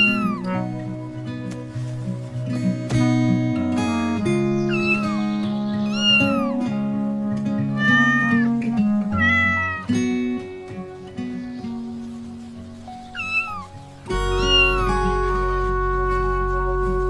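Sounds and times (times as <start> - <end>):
cat meowing: 0.0 - 0.6, 4.6 - 5.2, 5.8 - 6.6, 7.7 - 8.5, 9.1 - 10.0, 13.1 - 15.0
background music with plucked guitar: 0.0 - 17.0.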